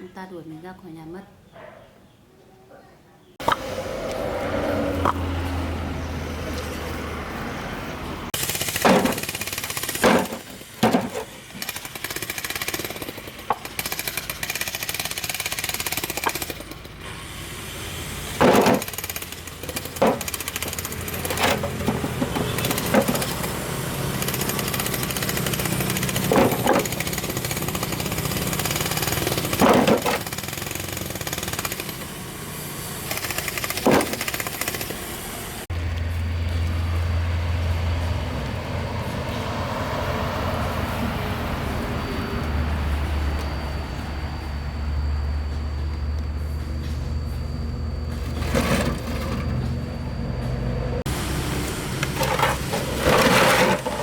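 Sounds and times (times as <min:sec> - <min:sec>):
rattling machine noise: 0:08.4 - 0:17.1, 0:18.4 - 0:32.1, 0:48.0 - 0:50.5, 0:51.8 - 0:54.0.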